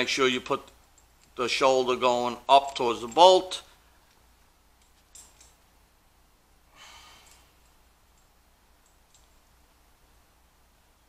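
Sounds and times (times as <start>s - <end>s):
faint breathy hiss: 6.0s - 8.7s.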